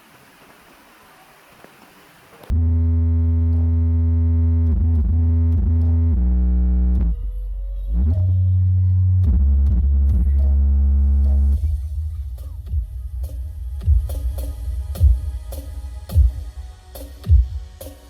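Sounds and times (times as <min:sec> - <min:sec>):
electronic dance music heavy bass: 0:02.5 - 0:07.2, 0:09.2 - 0:18.0.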